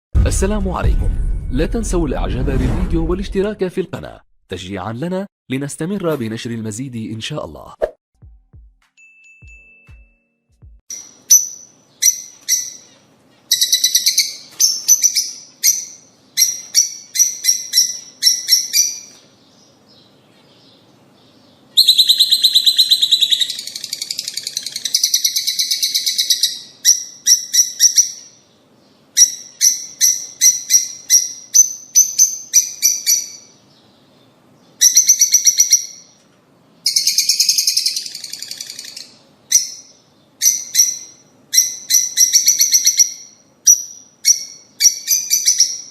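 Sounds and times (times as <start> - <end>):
lovebirds chirping: 10.9 - 36.2.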